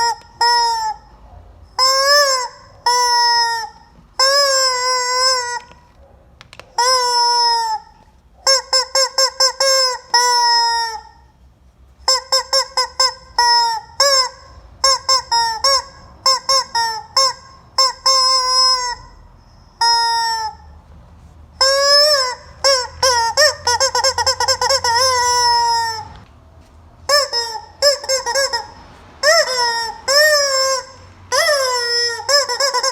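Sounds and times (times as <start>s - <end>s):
rubber chicken toy squawking: 0.0s - 11.4s, 12.0s - 20.8s, 21.6s - 26.3s, 27.0s - 32.9s.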